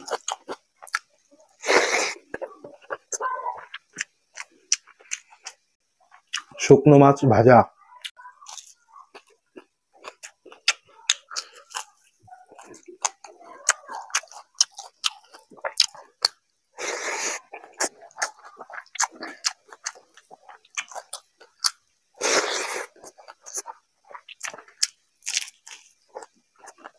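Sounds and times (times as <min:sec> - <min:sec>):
wet chewing: 0:00.0 - 0:06.6, 0:08.0 - 0:26.9
crunching fried fish: 0:08.4 - 0:26.9.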